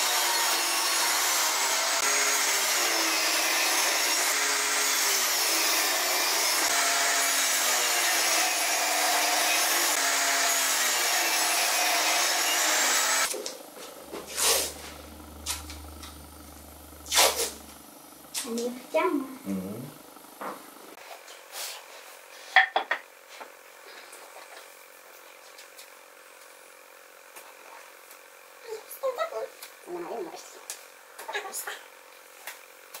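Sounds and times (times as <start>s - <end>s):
power tool cutting wood: 0.0s - 18.7s
low hum: 13.8s - 20.9s.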